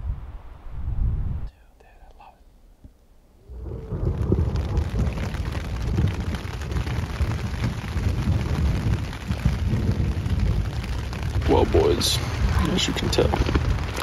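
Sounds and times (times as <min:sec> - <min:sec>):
heavy rain falling: 0:03.4 - 0:14.0.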